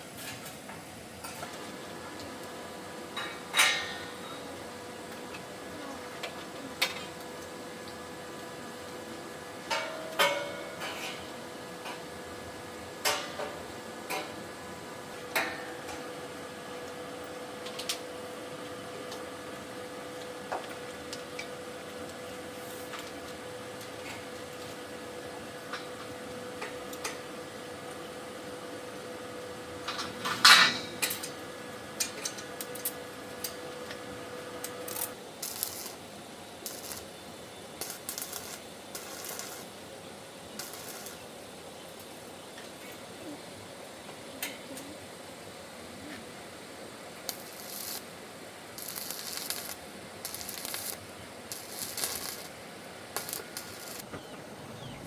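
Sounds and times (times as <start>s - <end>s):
faint steady hum: 0.0s - 55.0s
steady hum: 28.2s - 55.0s.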